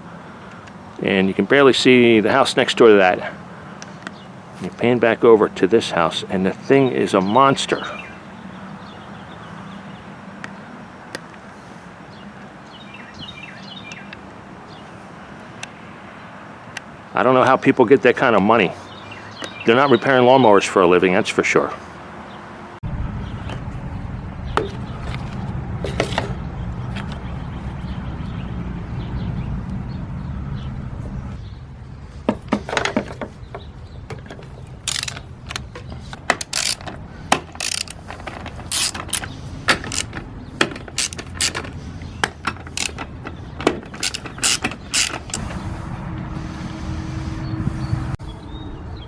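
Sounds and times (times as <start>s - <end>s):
hand tools clicking on metal: 32.3s - 45.4s.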